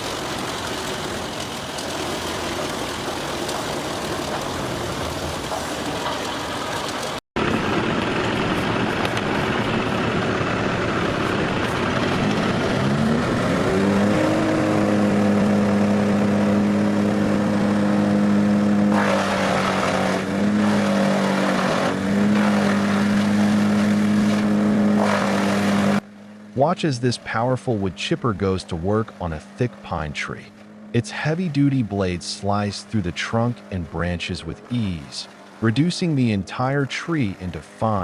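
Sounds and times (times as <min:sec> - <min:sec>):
wood chipper grinding: 0:00.0 - 0:26.7
diesel engine droning: 0:00.0 - 0:38.0.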